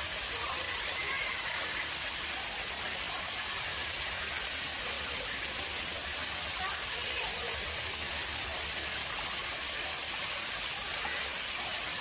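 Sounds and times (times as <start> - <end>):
water rushing into pond: 0.0 - 12.0.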